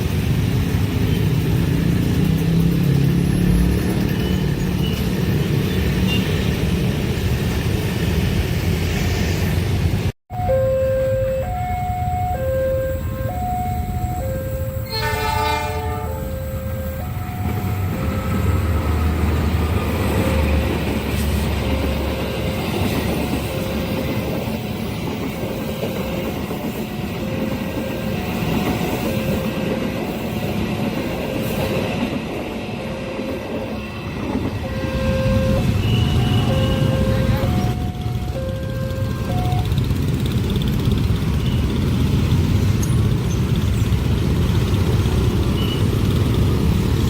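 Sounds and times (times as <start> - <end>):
train wheels rumbling and clacking: 0.0 - 10.1, 16.5 - 47.0
level crossing alarm two tones: 10.3 - 15.0, 34.7 - 39.8
train horn: 14.7 - 18.5, 34.6 - 37.8.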